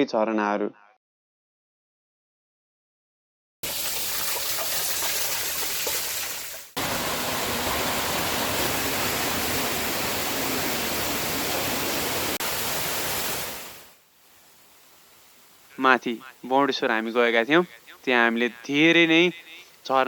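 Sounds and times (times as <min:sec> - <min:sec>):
waterfall pouring: 0:03.6 - 0:13.9.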